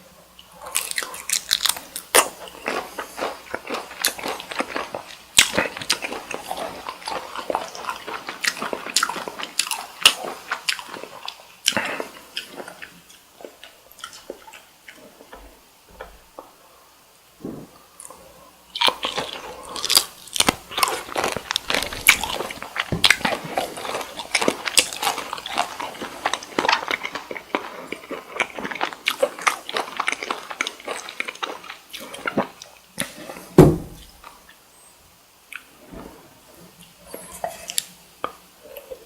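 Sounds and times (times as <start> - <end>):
close-miked chewing of shrimp: 0.0 - 17.0, 17.7 - 33.6
loud low thump: 17.4 - 17.8, 33.6 - 34.1.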